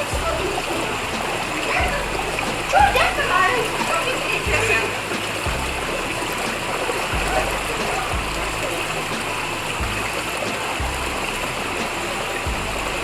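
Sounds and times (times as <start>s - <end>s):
background music with slow bass: 0.0s - 13.0s
running water rushing: 0.0s - 13.0s.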